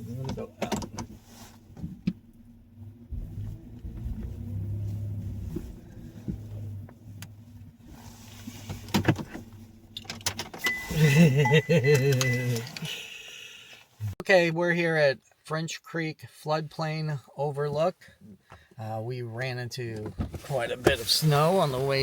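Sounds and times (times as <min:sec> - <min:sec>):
vehicle engine humming: 0:00.0 - 0:14.2.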